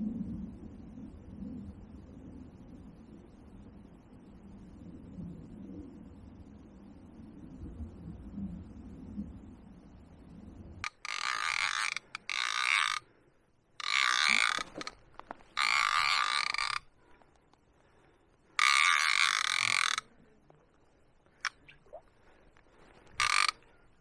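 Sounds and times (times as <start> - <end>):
fishing reel ratchet buzzing: 10.8 - 13.1, 13.8 - 16.9, 18.6 - 20.1, 23.1 - 23.6.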